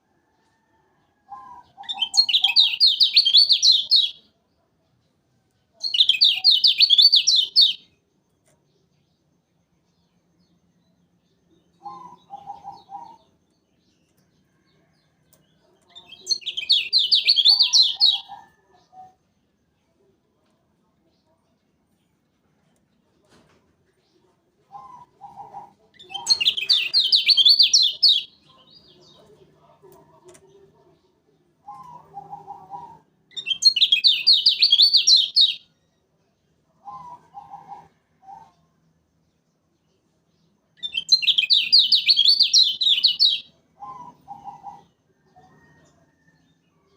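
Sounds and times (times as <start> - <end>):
bird singing bright chirps: 1.1 - 4.3, 5.6 - 19.6, 26.0 - 29.3, 30.3 - 36.3, 39.1 - 46.9.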